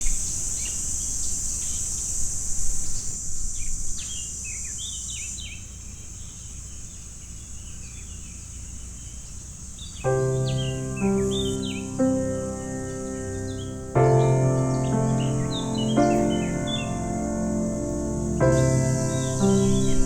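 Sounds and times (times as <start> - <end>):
small birds chirping: 0.0 - 20.0
high-pitched insect drone: 10.1 - 20.0
soft instrumental music: 10.1 - 20.0.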